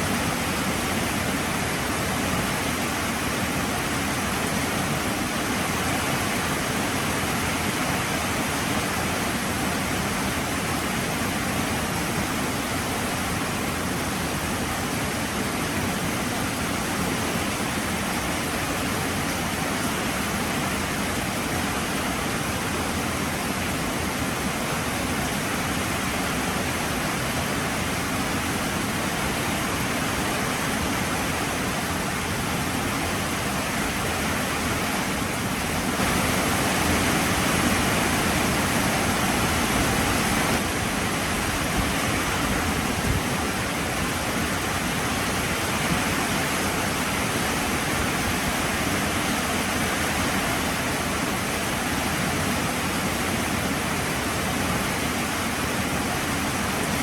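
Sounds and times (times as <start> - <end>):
heavy rain falling: 13.3 - 57.0.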